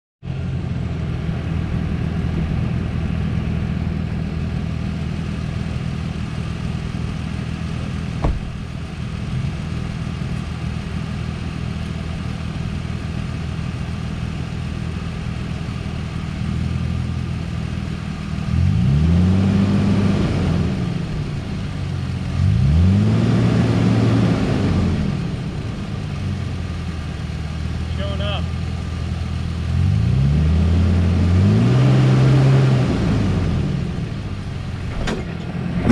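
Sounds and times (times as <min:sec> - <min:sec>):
off-road vehicle engine revving: 0:00.3 - 0:35.9
sharp knock: 0:08.2 - 0:08.6.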